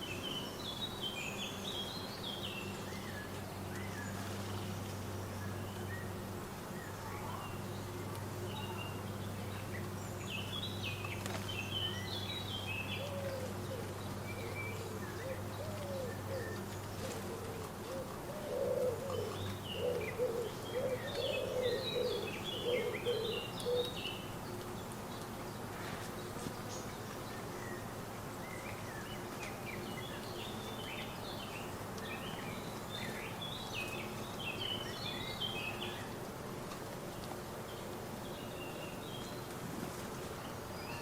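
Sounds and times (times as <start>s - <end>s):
pigeon cooing: 13.0s - 24.0s.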